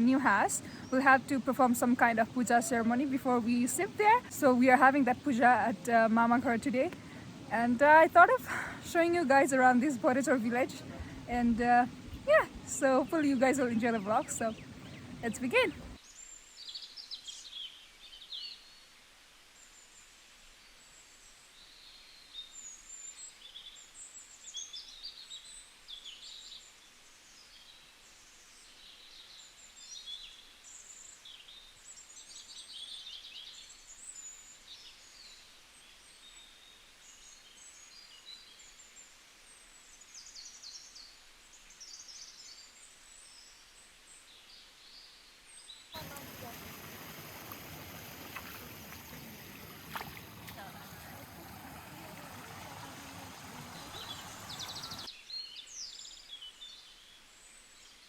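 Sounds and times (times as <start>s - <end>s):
small birds chirping: 0.0s - 18.6s, 46.0s - 56.9s
low background hiss: 0.0s - 58.0s.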